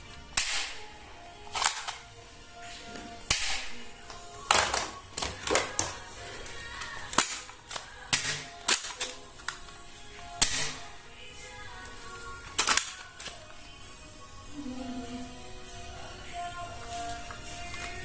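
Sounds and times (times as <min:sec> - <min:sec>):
background music: 0:00.0 - 0:18.0
toy gun shots: 0:00.4 - 0:00.8, 0:08.1 - 0:09.1, 0:10.4 - 0:10.8.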